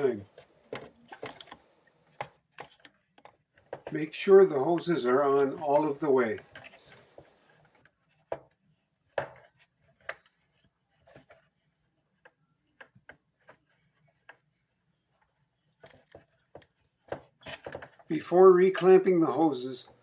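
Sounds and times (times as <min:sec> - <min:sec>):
rubber hoses being fitted: 0:00.0 - 0:08.6
plastic parts clicking and knocking: 0:00.2 - 0:04.0, 0:15.8 - 0:18.1.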